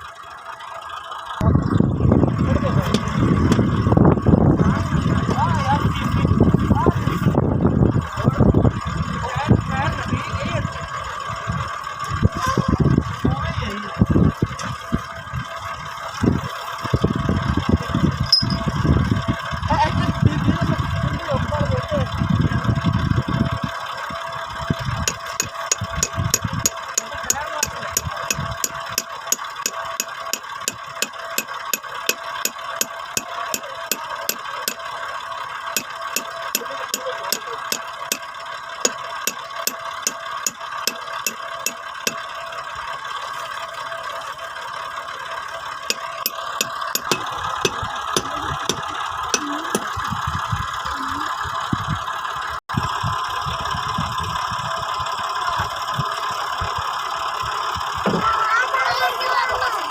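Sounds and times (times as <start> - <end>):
tractor diesel engine running: 0.0 - 59.9
regular sharp ticking: 25.0 - 35.0, 35.6 - 42.6, 45.8 - 50.0.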